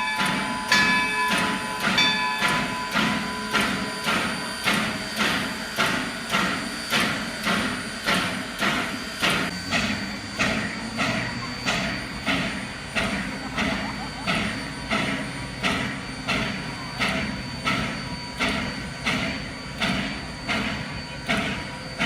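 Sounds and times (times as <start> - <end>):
multi-tone train whistle: 0.0 - 8.5
steam locomotive chuffing: 0.0 - 22.0.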